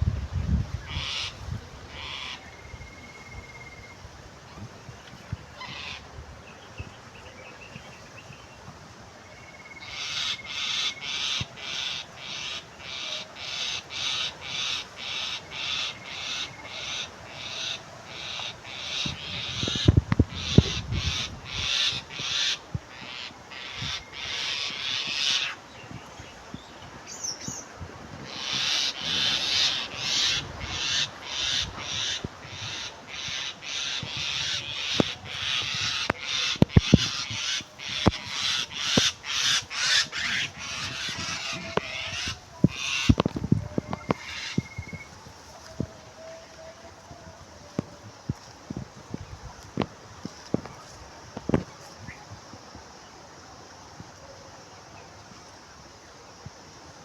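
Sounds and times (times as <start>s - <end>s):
bird giving harsh rasping calls: 28.3s - 43.2s.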